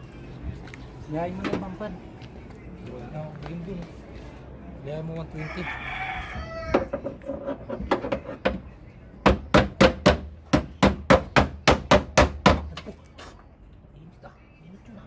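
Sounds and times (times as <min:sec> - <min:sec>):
hammer strikes: 0:09.2 - 0:12.9.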